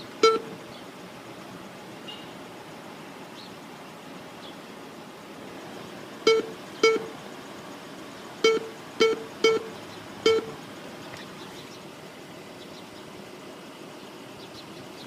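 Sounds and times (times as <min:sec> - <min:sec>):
keypad beeps: 0:00.2 - 0:00.6, 0:06.3 - 0:07.1, 0:08.4 - 0:10.6.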